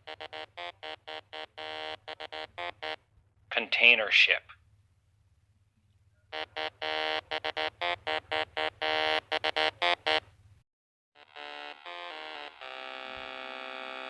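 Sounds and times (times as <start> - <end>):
eight-bit synthesized tune: 0.0 - 3.0, 6.4 - 10.2, 11.2 - 14.0.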